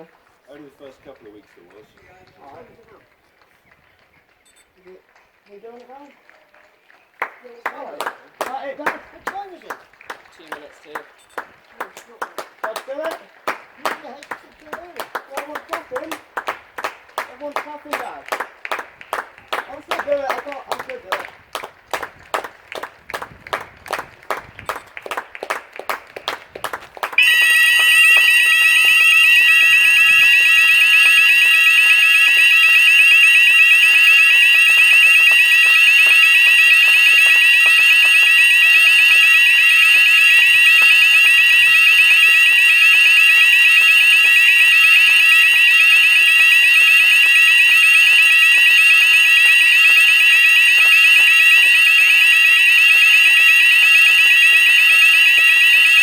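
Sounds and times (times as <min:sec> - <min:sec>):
hand clapping: 0:07.1 - 0:29.3, 0:33.9 - 0:39.2, 0:39.9 - 0:41.2
fire alarm sounders: 0:08.0 - 0:56.0.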